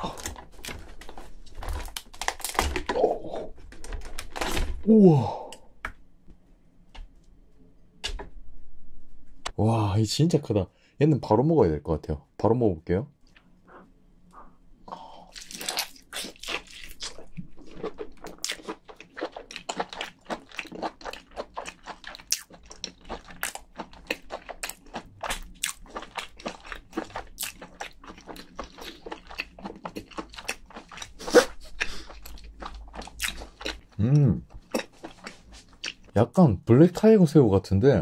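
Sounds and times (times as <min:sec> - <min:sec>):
mouth chewing with wet clicks: 0:15.3 - 0:36.1.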